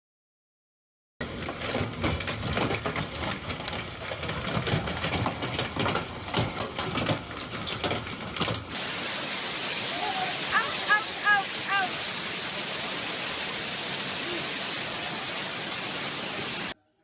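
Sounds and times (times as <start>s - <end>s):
dense clicking and rattling: 1.2s - 8.8s
even hiss: 8.8s - 16.8s.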